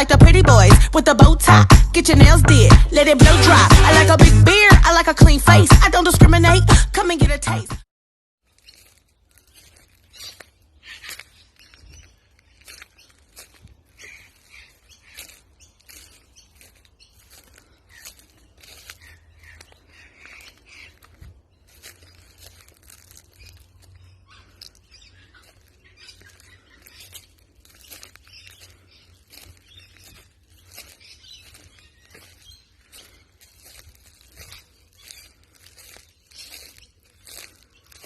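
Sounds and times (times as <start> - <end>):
rustling: 25.4 - 38.0.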